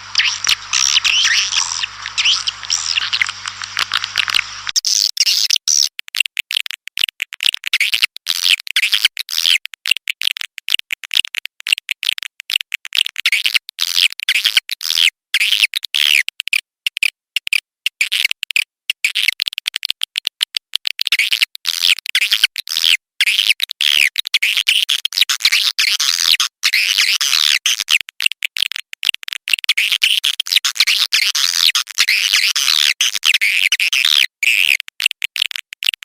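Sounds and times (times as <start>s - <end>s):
low hum: 0.0s - 4.8s
swiftlets twittering: 0.0s - 4.8s.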